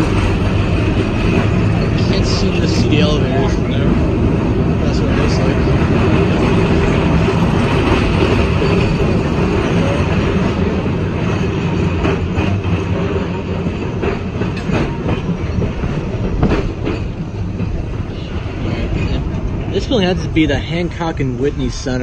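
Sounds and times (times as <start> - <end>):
streetcar wheels rumbling: 0.0 - 22.0.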